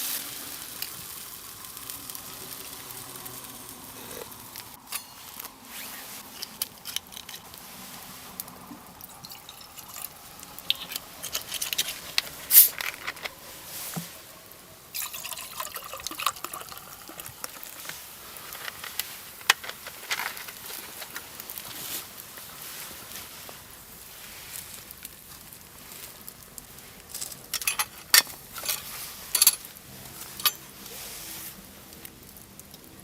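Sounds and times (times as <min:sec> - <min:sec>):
liquid dripping and trickling: 0:08.4 - 0:12.4, 0:14.5 - 0:19.2.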